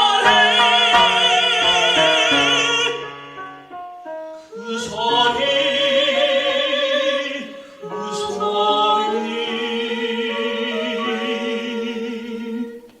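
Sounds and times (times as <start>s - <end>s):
band accompaniment: 0.0s - 3.7s
person singing with vibrato: 0.0s - 13.0s.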